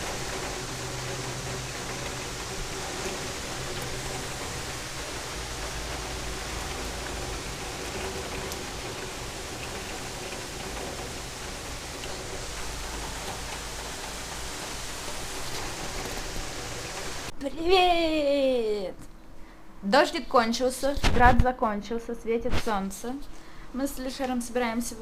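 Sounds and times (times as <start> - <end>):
heavy rain: 0.0 - 17.3.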